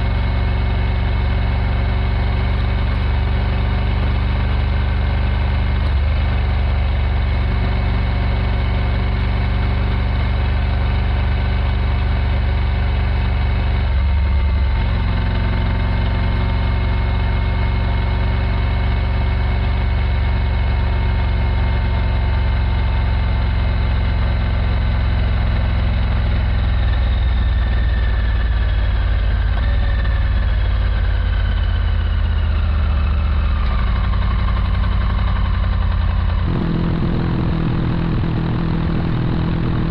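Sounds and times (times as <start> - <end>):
motorcycle engine running: 34.1 - 39.9.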